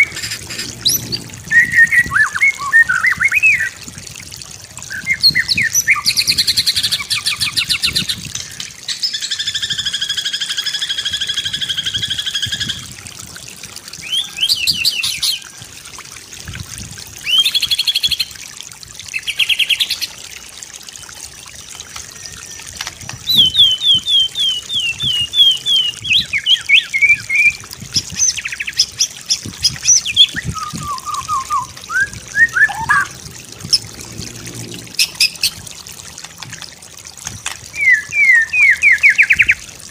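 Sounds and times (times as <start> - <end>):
faint trickling water: 0.0 - 39.9
songbird singing trills and whistles: 0.8 - 3.8, 4.9 - 12.8, 14.0 - 15.5, 22.2 - 33.2, 37.7 - 39.6.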